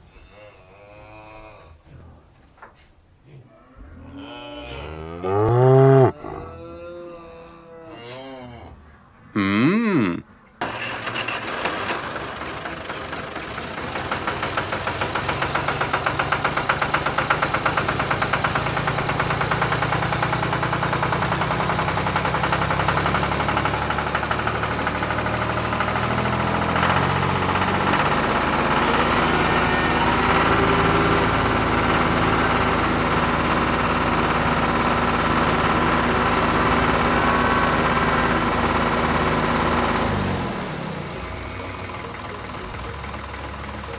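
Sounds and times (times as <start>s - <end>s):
tractor engine idling: 10.6s - 43.9s.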